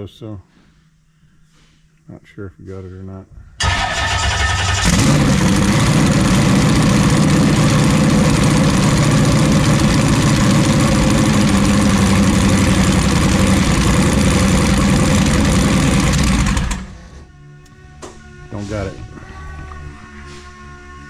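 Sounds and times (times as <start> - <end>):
boat engine idling loud: 4.9 - 17.0.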